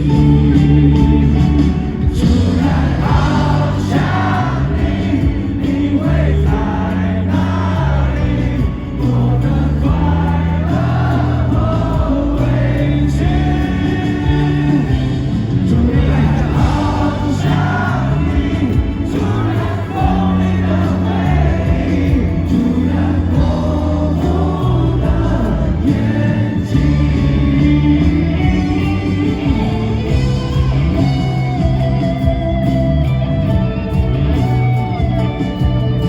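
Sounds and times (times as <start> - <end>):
live rock band: 0.0 - 36.0
person singing: 2.1 - 31.8.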